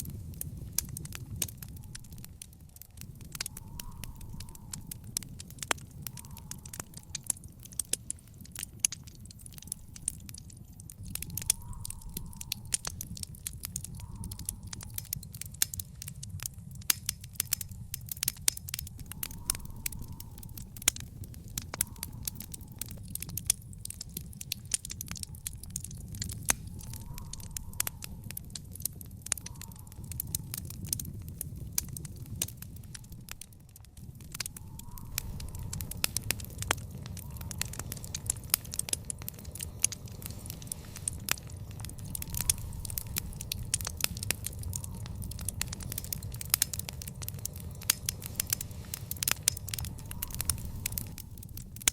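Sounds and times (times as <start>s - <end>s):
wood fire crackling and popping: 0.0s - 51.9s.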